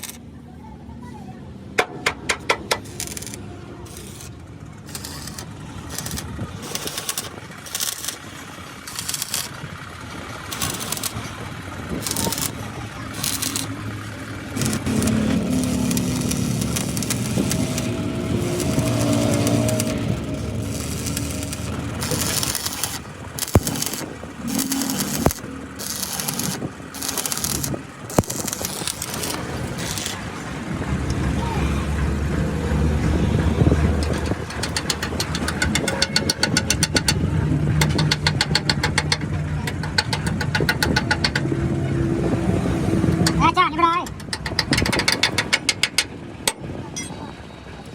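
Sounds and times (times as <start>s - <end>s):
low traffic rumble: 0.0s - 47.9s
scraping on metal: 12.0s - 13.8s, 14.5s - 30.4s.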